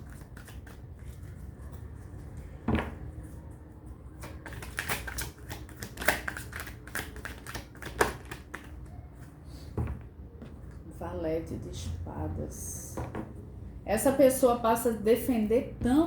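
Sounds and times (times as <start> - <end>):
cards shuffling clicks: 4.2 - 8.8.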